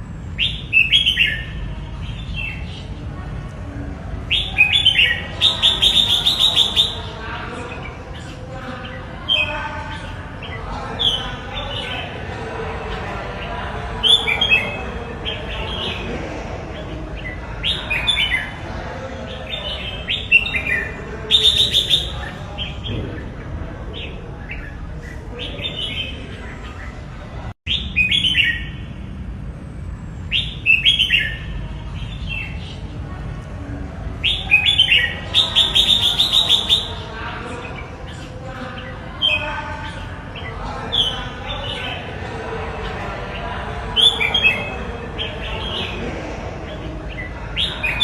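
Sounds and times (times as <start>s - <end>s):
bulbul singing: 4.1s - 12.2s, 19.3s - 27.1s, 34.1s - 42.1s.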